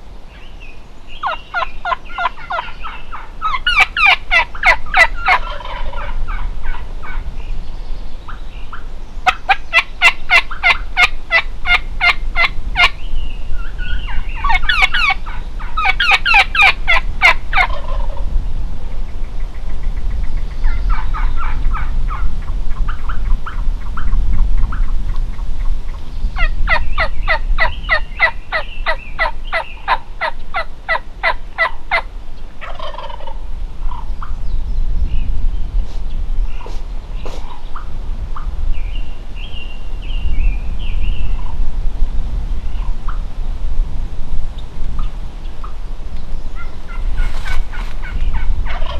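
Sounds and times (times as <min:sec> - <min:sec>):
turkey yelps: 0:01.2 - 0:07.2, 0:09.3 - 0:12.9, 0:13.7 - 0:18.2, 0:26.4 - 0:34.0, 0:46.6 - 0:48.9
turkeys gobbling: 0:01.2 - 0:07.2, 0:09.2 - 0:12.9, 0:14.0 - 0:18.2, 0:26.4 - 0:34.2, 0:46.6 - 0:48.9.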